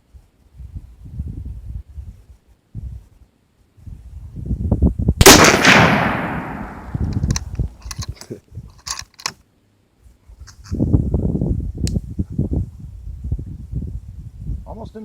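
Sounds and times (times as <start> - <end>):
rifle shot with echo: 5.2 - 7.5.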